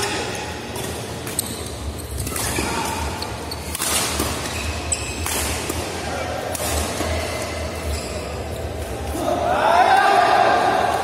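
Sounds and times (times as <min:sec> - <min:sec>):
rackets striking shuttlecock: 0:00.7 - 0:07.2.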